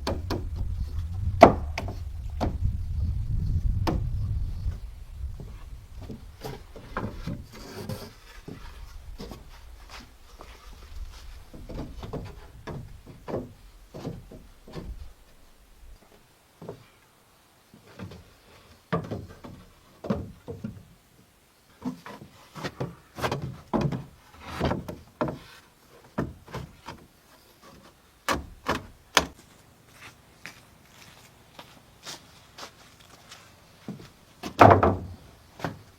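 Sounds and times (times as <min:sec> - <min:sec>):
wooden knocks and scrapes: 0:00.0 - 0:15.4, 0:21.8 - 0:27.0.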